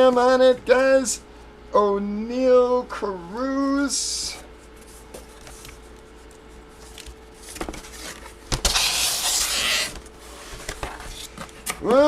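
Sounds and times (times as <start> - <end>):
faint steady hum: 0.0 - 12.0
loud rustling scrape: 7.4 - 11.4.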